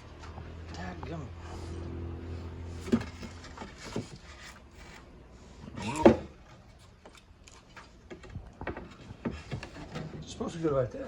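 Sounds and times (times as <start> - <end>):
knocks and rubbing of wood trim: 7.8 - 10.2.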